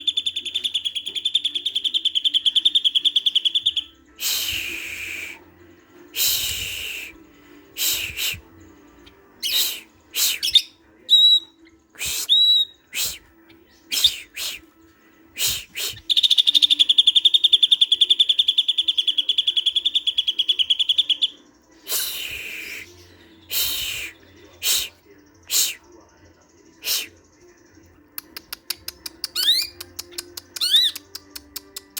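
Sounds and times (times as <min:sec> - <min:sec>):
bird singing rapid trill: 0:00.0 - 0:04.0, 0:09.4 - 0:13.2, 0:15.5 - 0:21.4, 0:29.3 - 0:29.8, 0:30.6 - 0:31.0.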